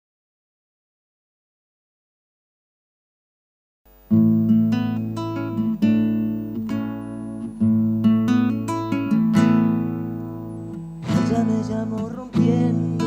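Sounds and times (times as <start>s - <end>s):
acoustic guitar chords: 3.9s - 13.0s.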